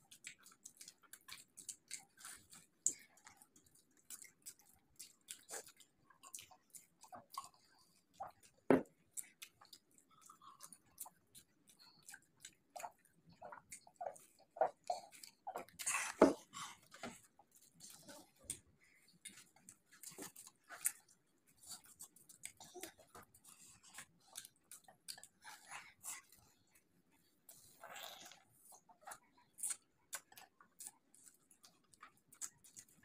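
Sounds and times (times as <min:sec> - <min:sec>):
chewing crisp food: 0:00.0 - 0:33.0
wet mouth sounds: 0:00.1 - 0:17.0, 0:27.5 - 0:33.0.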